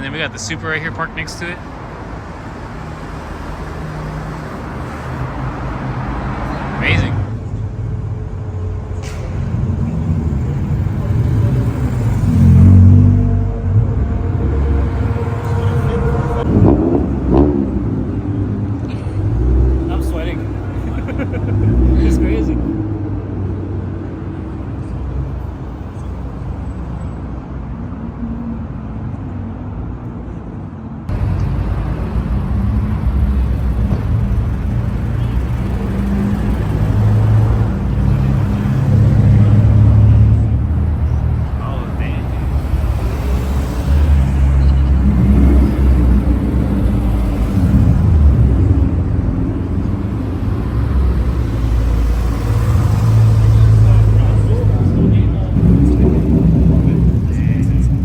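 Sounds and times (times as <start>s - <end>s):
car engines idling: 0.0s - 27.2s, 31.1s - 58.0s
car engine exhaust rumble: 31.1s - 58.0s.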